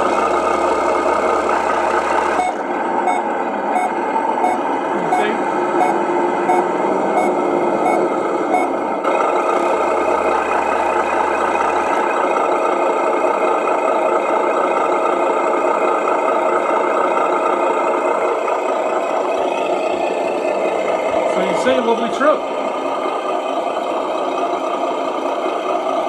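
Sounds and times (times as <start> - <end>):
reversing beeper: 0.0 - 8.8, 9.4 - 12.1
simulated diesel engine sound: 0.0 - 26.0.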